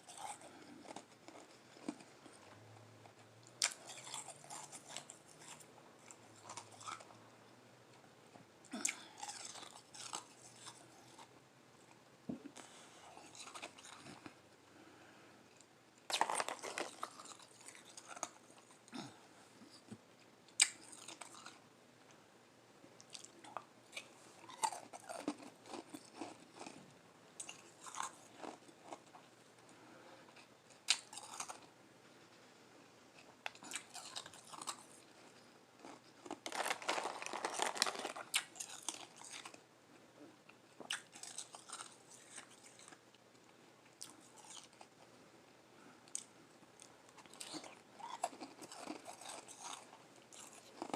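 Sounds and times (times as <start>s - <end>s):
chewing and crunching ice: 0.0s - 7.2s, 8.7s - 11.3s, 12.6s - 14.4s, 16.1s - 19.8s, 20.6s - 21.6s, 23.1s - 29.3s, 30.3s - 31.7s, 33.2s - 39.6s, 40.8s - 43.0s, 44.0s - 45.0s, 46.1s - 50.9s.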